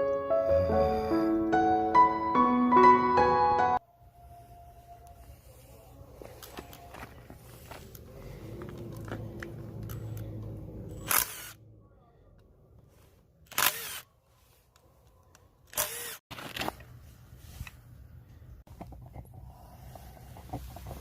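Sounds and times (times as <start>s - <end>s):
rustling handling noise: 4.9s - 10.2s, 16.0s - 19.0s.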